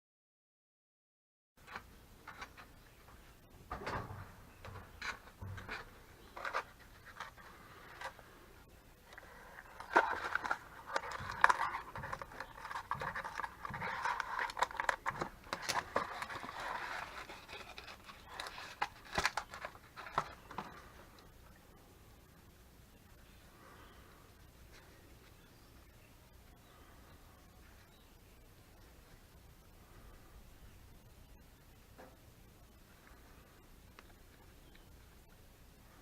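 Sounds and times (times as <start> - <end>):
scratchy scraping and rasping: 9.1 - 20.6.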